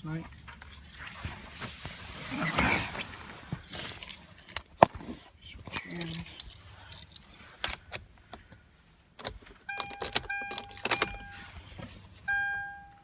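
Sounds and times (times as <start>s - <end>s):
keys clicking and rattling: 0.1s - 1.6s, 3.6s - 8.0s, 9.2s - 11.5s
car warning chime: 9.7s - 13.0s.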